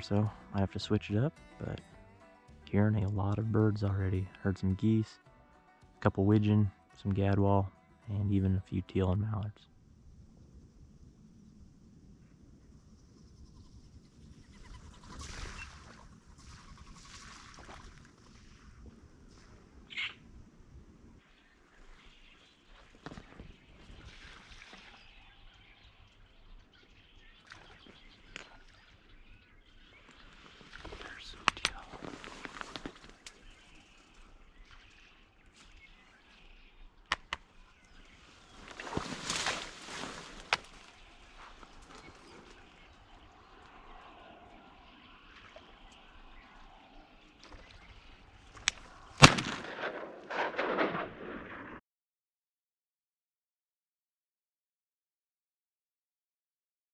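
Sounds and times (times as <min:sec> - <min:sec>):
marsh ambience: 0:00.0 - 0:10.0, 0:27.2 - 0:51.6
distant waterfowl calls: 0:13.5 - 0:17.8, 0:21.8 - 0:49.4
rustling and splashing: 0:14.9 - 0:18.7, 0:22.6 - 0:25.1, 0:30.2 - 0:35.8, 0:38.1 - 0:43.8
shotgun shot: 0:49.2 - 0:51.8.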